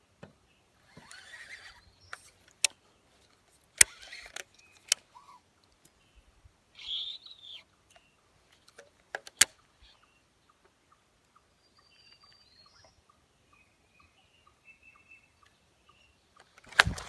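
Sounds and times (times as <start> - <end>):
faint bird chirps: 0.4 - 8.8, 9.5 - 16.6
fishing reel ticking: 0.9 - 2.7, 3.8 - 5.0
sharp clicks: 0.9 - 2.8, 3.8 - 5.1, 8.6 - 9.6, 16.4 - 17.0.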